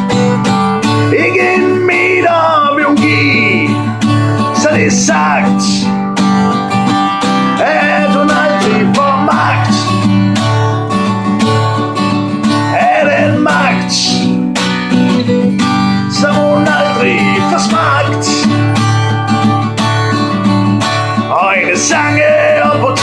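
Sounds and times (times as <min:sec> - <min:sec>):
acoustic guitar strumming: 0:00.0 - 0:23.0
person singing: 0:00.8 - 0:06.5, 0:07.4 - 0:10.2, 0:12.5 - 0:14.3, 0:15.9 - 0:19.0, 0:21.1 - 0:23.0.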